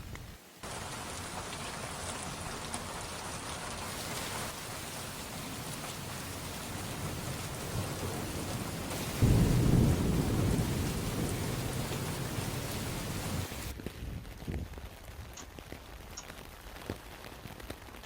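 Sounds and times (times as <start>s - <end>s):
heavy rain pouring: 0.6s - 18.0s
low rumble of thunder: 6.8s - 13.7s.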